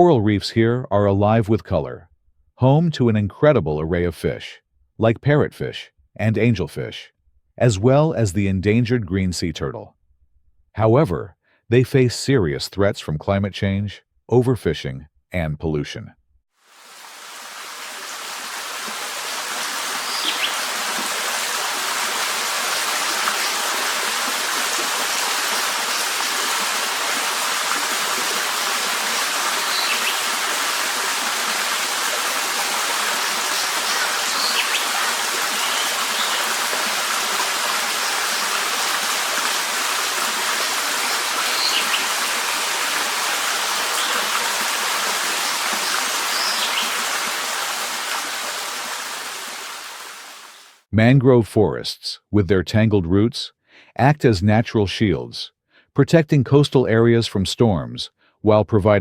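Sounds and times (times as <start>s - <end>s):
running water rushing: 16.6s - 50.8s
high bird chirps: 20.1s - 20.7s, 29.6s - 30.2s, 33.6s - 34.9s, 35.6s - 36.5s, 41.4s - 42.1s, 45.8s - 47.0s.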